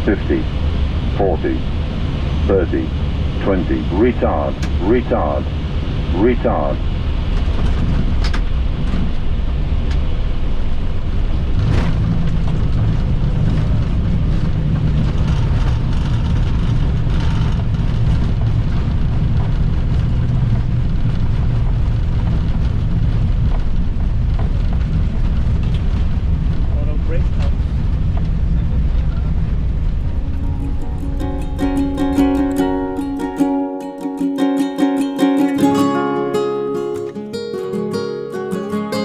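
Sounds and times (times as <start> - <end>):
wheels and engines rumbling: 6.8 - 33.4.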